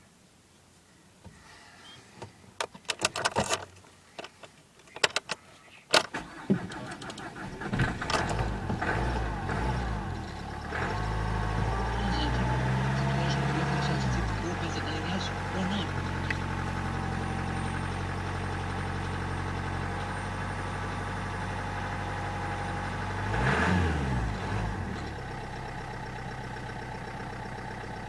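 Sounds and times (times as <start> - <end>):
clicks and rattles: 2.6 - 8.8
diesel engine cranking and starting: 5.9 - 28.0.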